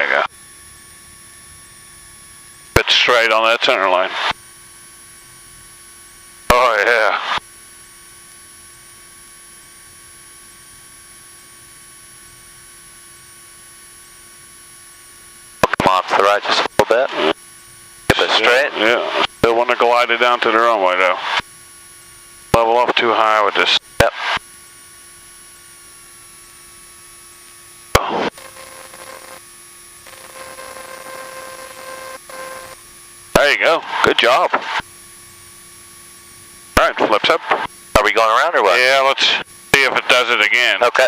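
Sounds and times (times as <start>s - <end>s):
electrical hiss and hum: 0.0s - 41.0s
burst of static: 2.8s - 4.4s, 6.5s - 7.4s, 15.6s - 17.4s, 18.1s - 21.5s, 22.5s - 24.5s, 27.9s - 34.9s, 36.7s - 41.0s
faint steady tones: 12.2s - 41.0s.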